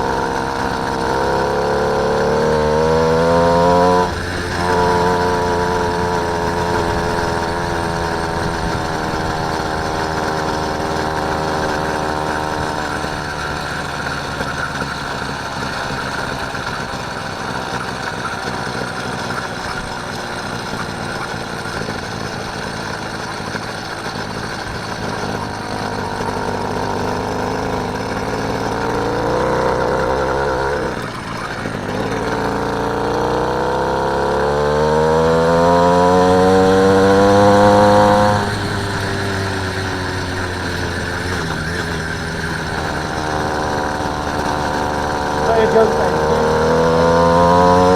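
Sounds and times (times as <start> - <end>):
motorised bike engine running: 0.0 - 47.9.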